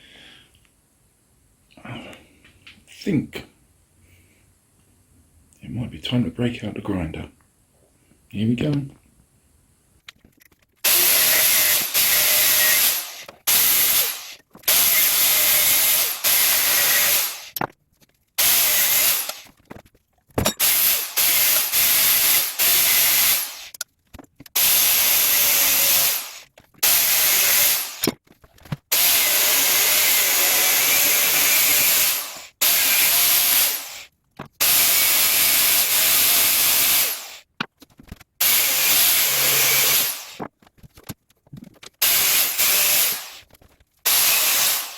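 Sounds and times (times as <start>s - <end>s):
angle grinder cutting steel: 10.9s - 17.6s, 18.4s - 19.4s, 20.6s - 23.7s, 24.6s - 28.1s, 28.9s - 37.4s, 38.4s - 40.4s, 42.0s - 43.4s, 44.1s - 44.9s.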